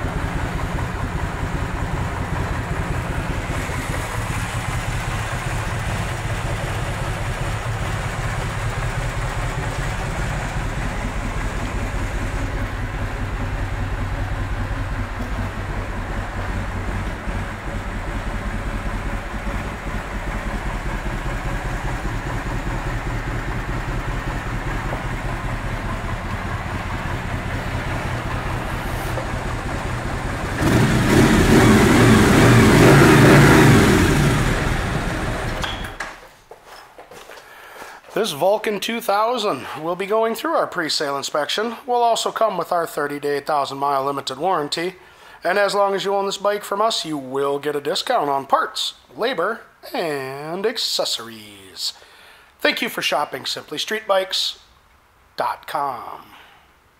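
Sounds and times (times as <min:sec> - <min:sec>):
motorcycle engine idling and revving: 0:00.0 - 0:36.0.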